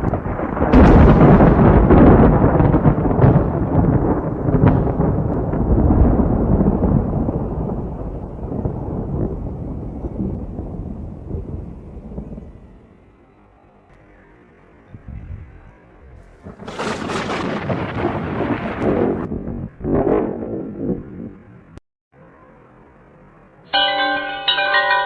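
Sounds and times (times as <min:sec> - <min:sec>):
sharp thunder cracks: 0:00.0 - 0:13.1, 0:16.1 - 0:21.8
thunder rumbling: 0:00.0 - 0:13.8, 0:14.9 - 0:21.8.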